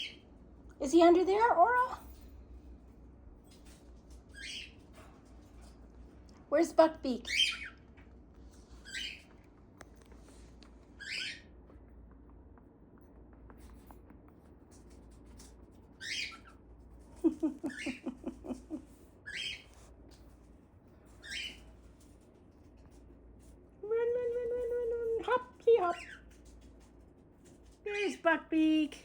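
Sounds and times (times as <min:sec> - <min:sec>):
pet birds high falling calls: 0:04.3 - 0:04.8, 0:07.1 - 0:07.8, 0:08.8 - 0:09.3, 0:11.0 - 0:11.6, 0:16.0 - 0:16.6, 0:19.2 - 0:19.8, 0:21.2 - 0:21.7.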